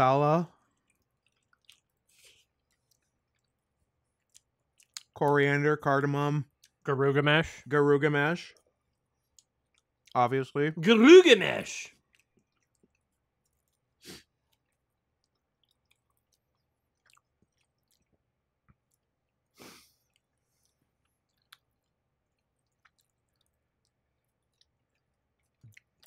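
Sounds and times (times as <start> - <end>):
person chewing: 0.5 - 5.2, 6.5 - 6.8, 8.5 - 10.2, 11.9 - 26.0.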